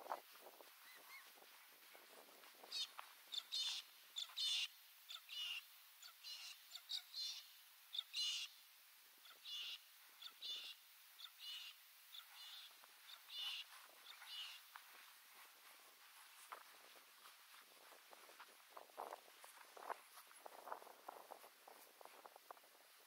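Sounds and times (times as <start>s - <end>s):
birds warbling chirps: 0.8s - 1.3s, 2.6s - 8.6s, 9.2s - 14.8s.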